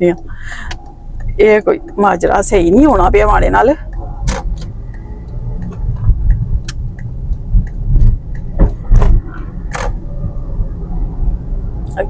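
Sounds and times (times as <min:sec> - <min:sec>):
car road and engine rumble: 0:00.0 - 0:12.0
sharp clicks: 0:03.9 - 0:10.0.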